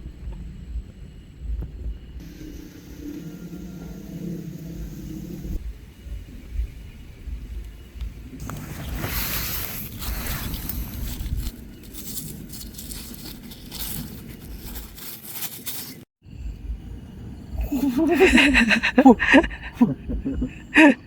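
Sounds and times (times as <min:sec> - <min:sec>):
wind gusting against microphone: 0:00.0 - 0:15.0
rustling and scraping: 0:08.4 - 0:16.1.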